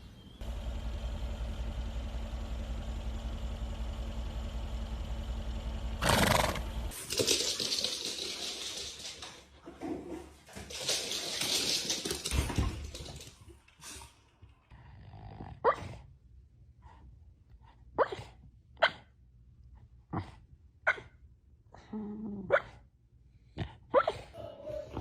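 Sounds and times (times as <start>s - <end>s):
dog barking: 18.0s - 19.1s, 20.9s - 21.1s, 23.9s - 25.0s.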